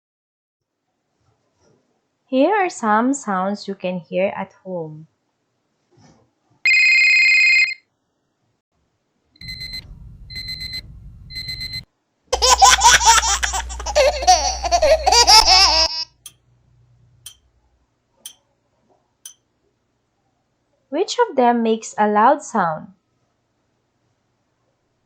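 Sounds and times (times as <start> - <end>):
telephone ringing: 6.7 - 7.8
alarm clock beeping: 9.4 - 11.8
baby laughing: 12.4 - 16.3.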